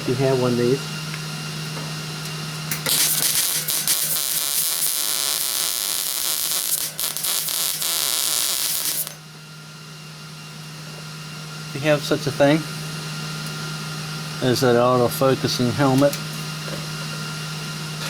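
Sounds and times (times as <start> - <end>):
welding arc crackling: 2.7 - 9.2.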